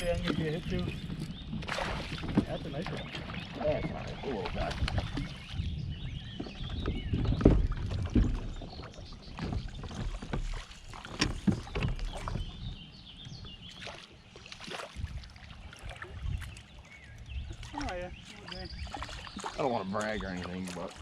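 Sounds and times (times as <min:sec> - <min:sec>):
paddle and gear knocking on boat: 0:00.0 - 0:13.8
water sloshing against hull: 0:00.0 - 0:21.0.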